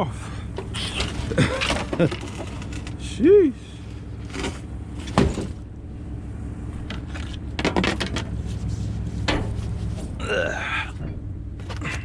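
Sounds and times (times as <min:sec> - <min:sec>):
low engine hum: 0:00.0 - 0:12.0
scrap aluminum clanking: 0:00.5 - 0:03.1, 0:03.8 - 0:05.7, 0:06.8 - 0:10.4.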